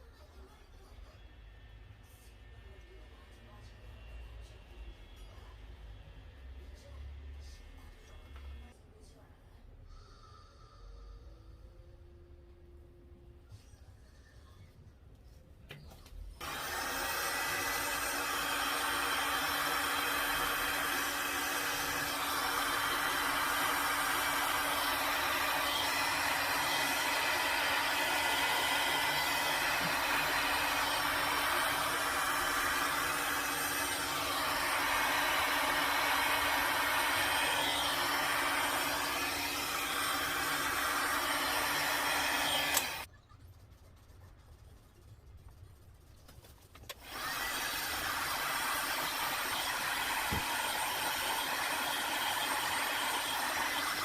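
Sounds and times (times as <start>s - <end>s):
hot-air blower whining: 16.4s - 43.1s, 46.9s - 54.0s.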